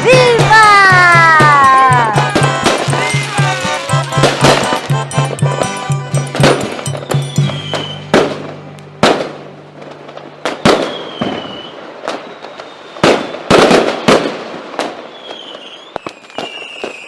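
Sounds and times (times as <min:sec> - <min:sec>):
fireworks banging: 0:00.0 - 0:17.0
falling firework whistles: 0:06.6 - 0:08.3, 0:10.4 - 0:17.0.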